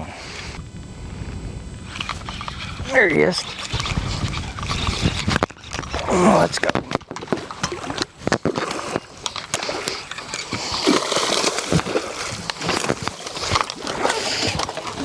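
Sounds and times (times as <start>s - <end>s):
water sloshing and splashing: 2.0s - 15.0s.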